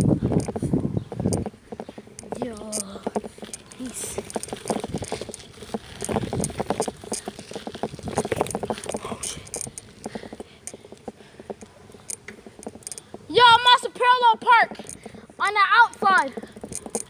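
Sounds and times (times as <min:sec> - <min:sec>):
bicycle rattling over rough ground: 0:00.0 - 0:17.0.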